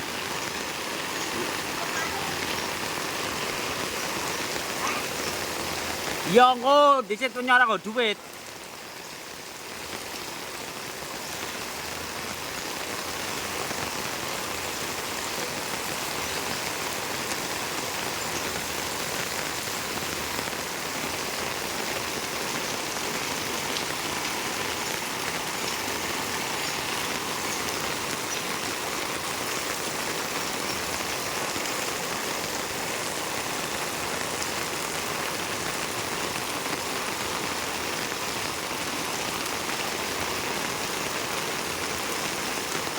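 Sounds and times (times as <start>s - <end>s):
rain hissing: 0.0s - 42.9s.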